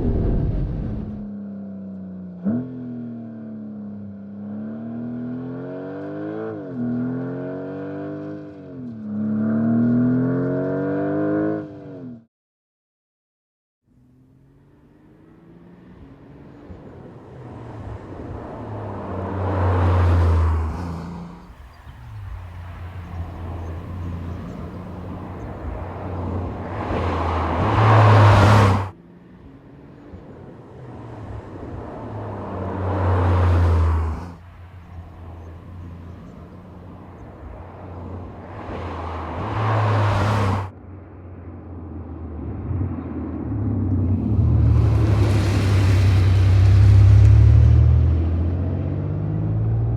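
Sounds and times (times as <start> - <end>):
car engine accelerating hard: 14.4 - 40.7, 42.0 - 49.9.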